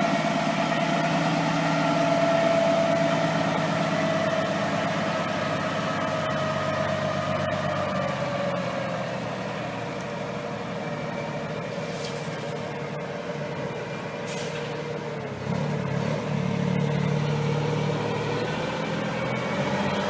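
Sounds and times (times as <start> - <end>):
truck diesel engine running: 0.0 - 20.0.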